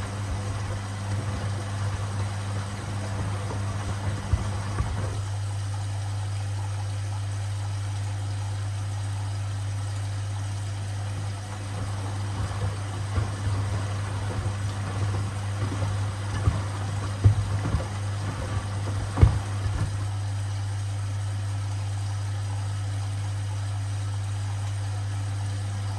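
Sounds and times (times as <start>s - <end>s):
sneakers knocking in drum: 0.0s - 5.2s, 11.2s - 20.1s
rough churning noise: 0.0s - 5.3s, 11.0s - 20.2s
washing machine motor hum: 0.0s - 7.4s, 9.6s - 21.4s.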